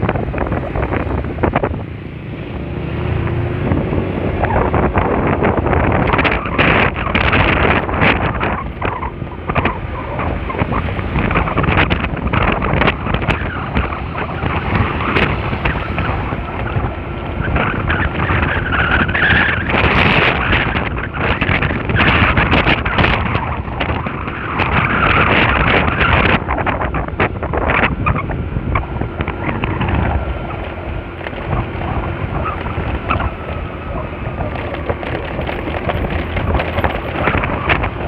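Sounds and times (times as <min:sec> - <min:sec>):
road noise: 0:00.0 - 0:38.0
wind buffeting microphone: 0:00.0 - 0:38.0.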